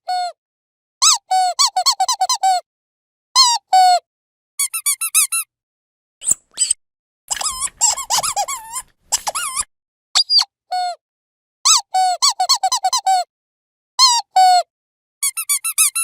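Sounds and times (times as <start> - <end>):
squeaky dog toy squeaking: 1.0 - 2.6, 4.6 - 5.5, 6.2 - 10.5, 11.7 - 13.3, 15.2 - 16.0.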